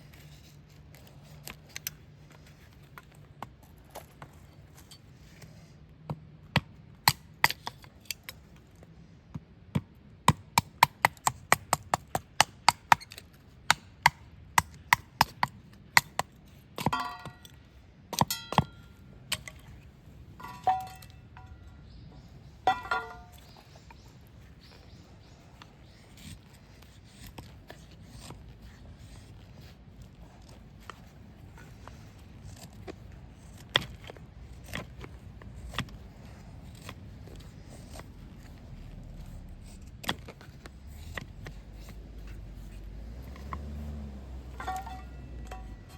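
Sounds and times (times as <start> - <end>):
ringing metallic clinks: 18.3 - 18.9, 44.5 - 45.9.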